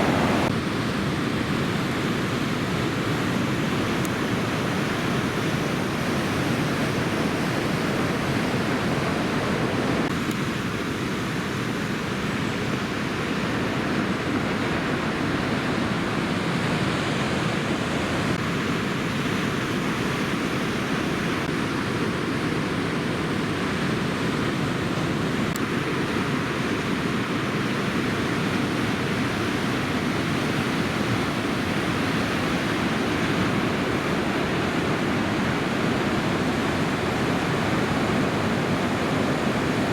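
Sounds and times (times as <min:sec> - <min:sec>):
wind on microphone: 0:00.0 - 0:00.5, 0:03.8 - 0:10.2
ocean surf rushing: 0:00.0 - 0:39.9.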